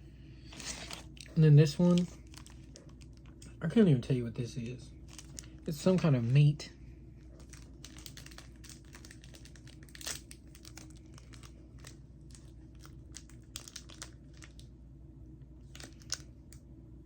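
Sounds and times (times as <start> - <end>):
plastic wrapper crinkling: 0.5 - 3.5, 5.0 - 6.1, 7.2 - 14.7, 15.6 - 16.4.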